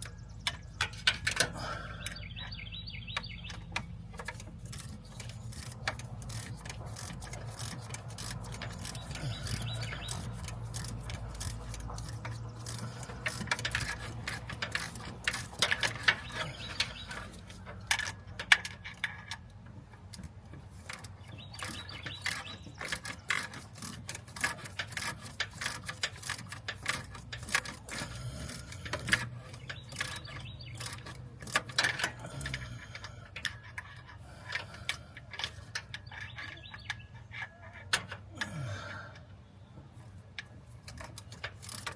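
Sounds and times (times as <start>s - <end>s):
ratchet wrench clicking: 3.1s - 37.0s, 40.8s - 41.9s.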